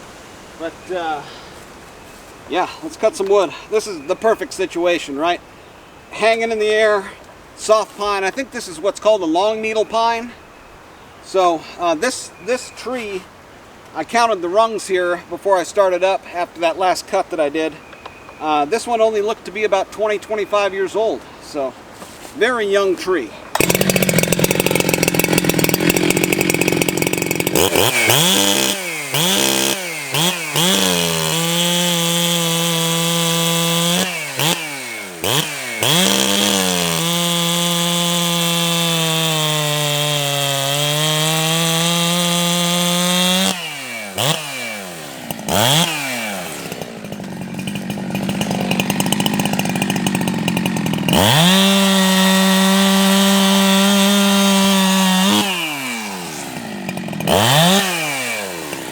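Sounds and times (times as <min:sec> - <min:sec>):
chainsaw revving and cutting wood: 0:23.5 - 0:58.9.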